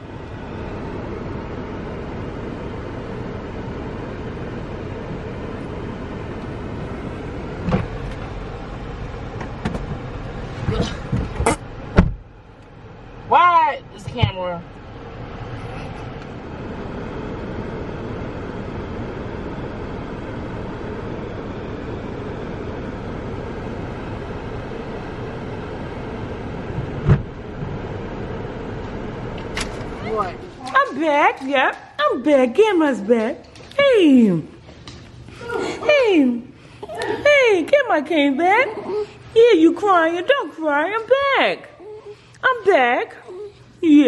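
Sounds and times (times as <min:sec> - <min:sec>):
short thump: 0:10.7 - 0:12.2, 0:27.0 - 0:27.3.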